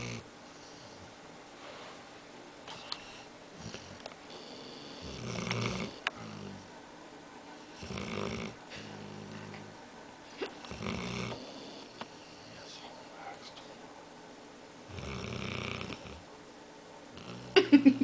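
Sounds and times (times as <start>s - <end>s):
dog snoring: 0.0s - 1.1s, 2.7s - 6.7s, 7.6s - 9.8s, 10.4s - 12.6s, 14.9s - 16.2s, 17.1s - 17.6s.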